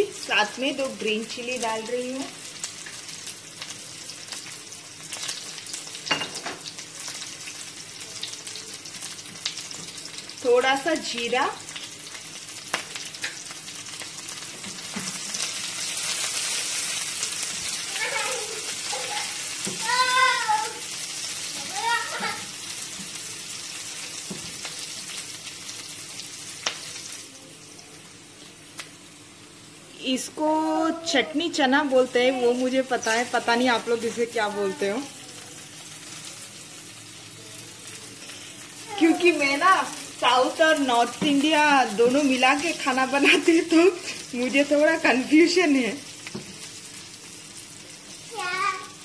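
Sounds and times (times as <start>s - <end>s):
food sizzling in oil: 0.0s - 49.0s
oil crackling and popping: 2.3s - 10.4s, 11.0s - 27.3s, 46.0s - 49.0s.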